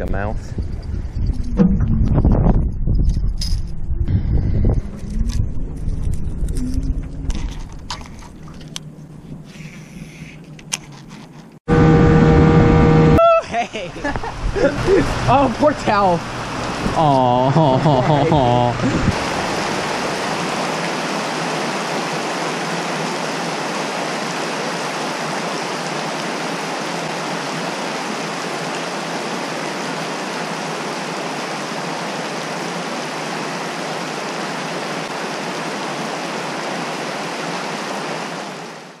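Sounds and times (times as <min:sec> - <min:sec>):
heavy rain on water: 0:13.6 - 0:39.0.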